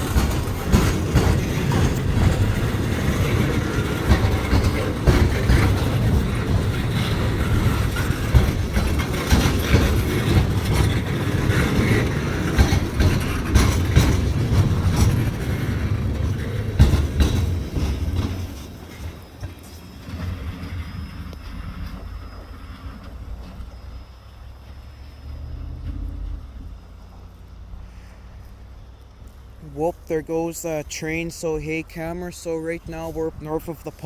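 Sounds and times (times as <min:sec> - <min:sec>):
wheels clicking over rail joints: 0:00.0 - 0:24.0
train rumbling past: 0:00.0 - 0:34.0.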